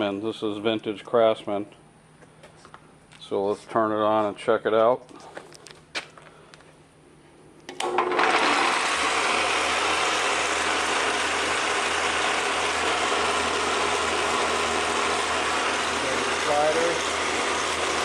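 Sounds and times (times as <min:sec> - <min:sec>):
table saw motor running: 0:07.7 - 0:18.0.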